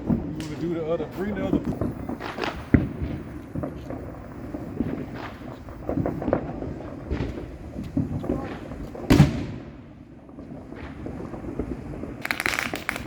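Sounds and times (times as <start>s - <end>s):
fireworks popping and thudding: 0.0s - 13.0s
loud firework bang: 1.5s - 9.8s.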